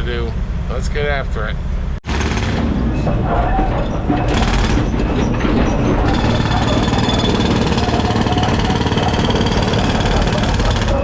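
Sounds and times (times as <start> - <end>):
demolition machinery clatter: 2.1 - 11.0.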